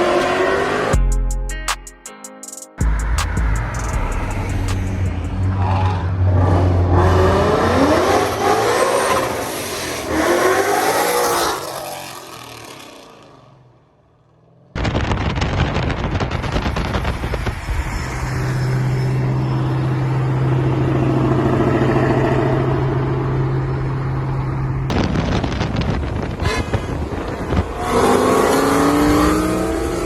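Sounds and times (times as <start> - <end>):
loud car exhaust: 2.8 - 13.4, 14.8 - 30.0
exhaust popping: 14.8 - 18.3.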